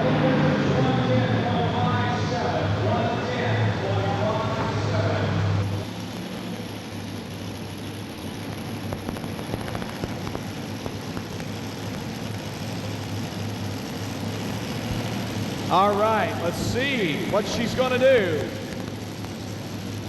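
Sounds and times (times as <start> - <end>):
arena noise: 0.0 - 5.7, 15.6 - 19.7
tractor engine idling: 0.0 - 20.0
faint ticks: 8.4 - 12.1.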